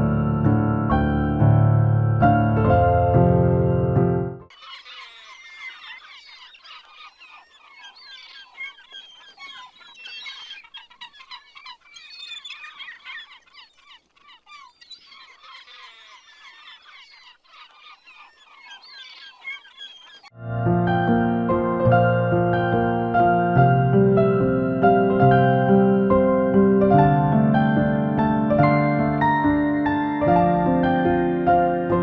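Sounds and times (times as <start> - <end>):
birds chirping: 4.5 - 20.4.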